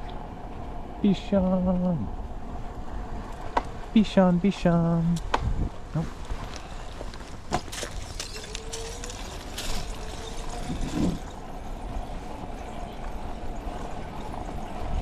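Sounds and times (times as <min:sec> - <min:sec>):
wind on microphone: 0:05.2 - 0:07.6, 0:09.6 - 0:12.6
bicycle tyres rolling: 0:05.2 - 0:15.0.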